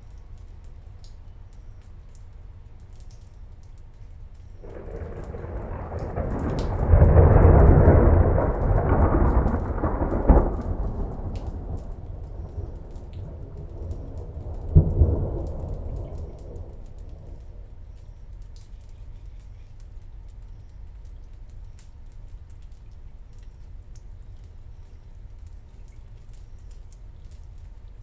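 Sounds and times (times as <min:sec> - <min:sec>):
light rain patter: 0:00.0 - 0:28.0
sharp thunder claps: 0:04.6 - 0:18.0
thunder rumbling: 0:04.6 - 0:18.5.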